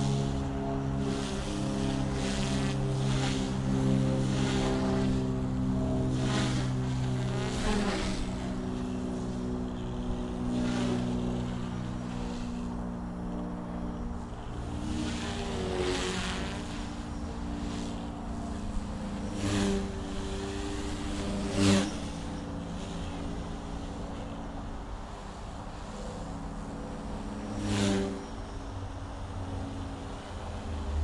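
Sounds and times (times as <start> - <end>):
rc helicopter rotors humming: 0.0 - 31.0.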